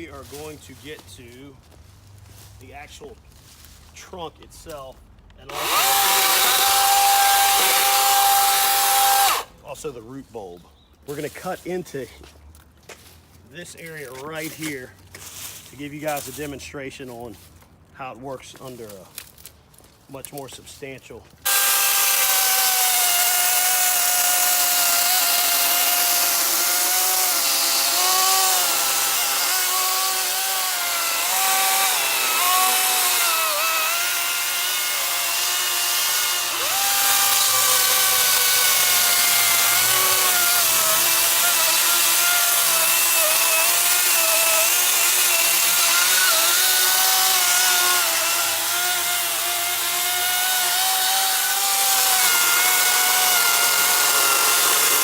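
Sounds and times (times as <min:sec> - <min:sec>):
electric chainsaw cutting wood: 0:05.5 - 0:09.5, 0:21.4 - 0:55.0.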